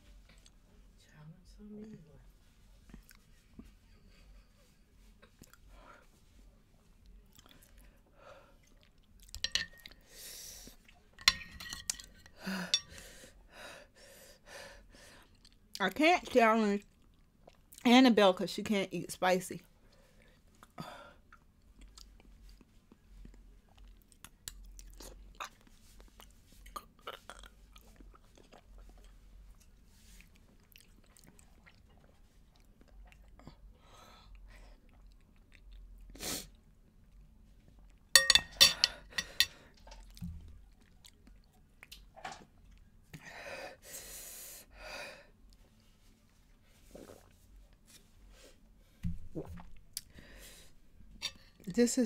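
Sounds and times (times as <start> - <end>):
person chewing: 7.3 - 7.9, 8.6 - 10.0, 16.9 - 17.8, 20.2 - 33.7, 34.6 - 42.9.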